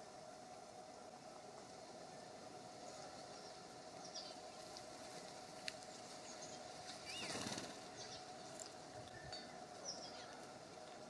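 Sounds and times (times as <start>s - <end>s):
songbirds chirping: 0.0s - 11.0s
bird wingbeats: 5.0s - 8.2s.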